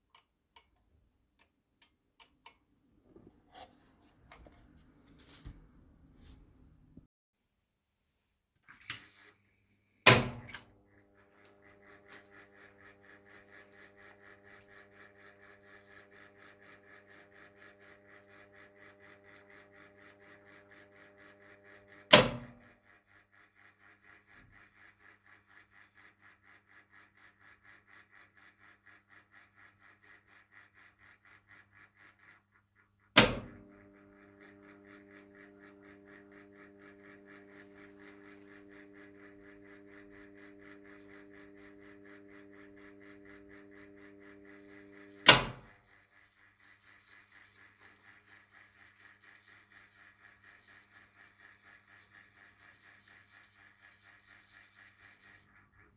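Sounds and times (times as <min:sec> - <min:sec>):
loud switching clunk: 0:10.1 - 0:10.6, 0:22.1 - 0:22.6, 0:33.2 - 0:33.6, 0:45.2 - 0:45.7
mains hum: 0:33.4 - 0:55.9.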